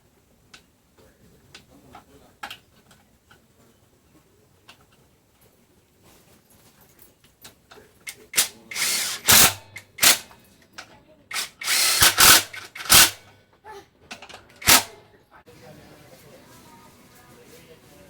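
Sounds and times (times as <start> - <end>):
harsh bursts of metalworking noise: 8.4 - 10.3, 11.3 - 13.2, 14.6 - 15.0.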